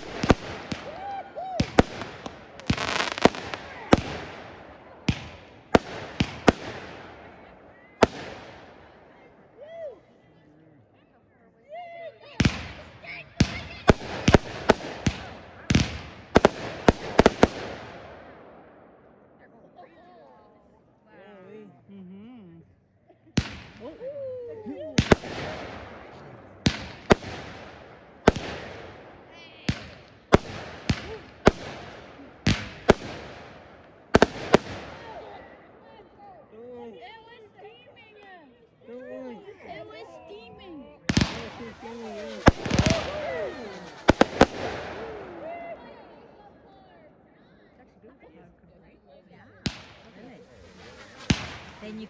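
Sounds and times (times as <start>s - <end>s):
fireworks crackling: 0.0s - 9.4s, 12.4s - 19.2s, 23.4s - 24.1s, 24.8s - 36.1s, 41.1s - 46.4s, 49.6s - 52.0s
fireworks exploding: 0.0s - 9.5s, 12.4s - 19.2s, 23.4s - 24.1s, 24.9s - 36.1s, 41.1s - 46.4s, 49.6s - 52.0s.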